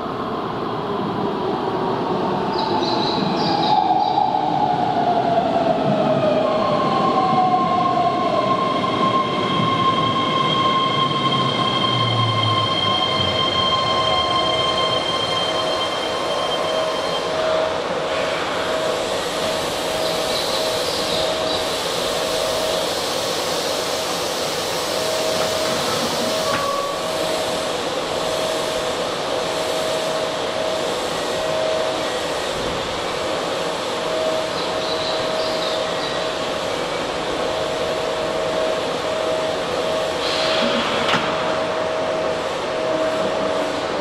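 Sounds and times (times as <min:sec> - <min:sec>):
train equipment fan hiss: 0:15.0 - 0:44.0.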